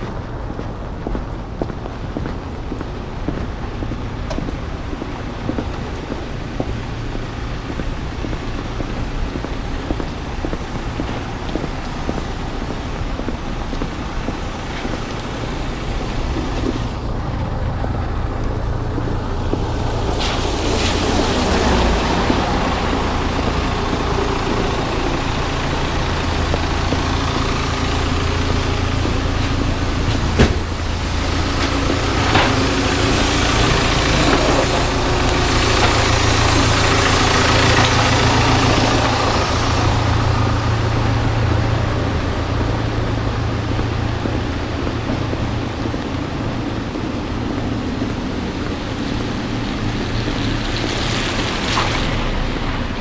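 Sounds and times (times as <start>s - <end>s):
heavy vehicle engine rumble: 0.0s - 53.0s
tyre hiss on wet road: 19.0s - 45.6s.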